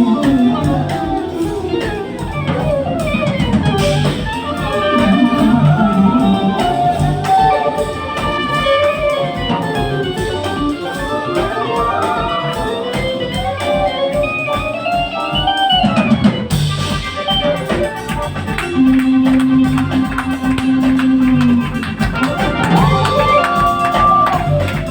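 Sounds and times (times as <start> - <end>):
drum beat: 0.0 - 24.9
gliding lead melody: 0.0 - 24.9
guitar: 0.0 - 24.9.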